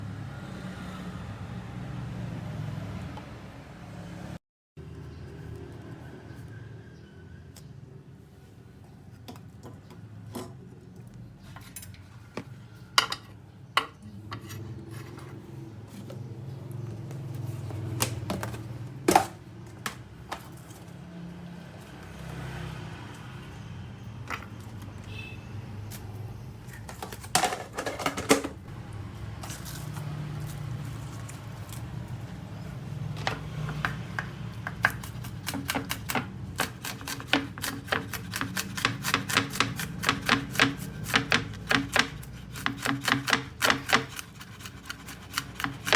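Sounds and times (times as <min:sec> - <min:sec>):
utensils and dishes clattering: 0:26.6 - 0:28.6
knife chopping on cutting board: 0:33.3 - 0:45.9.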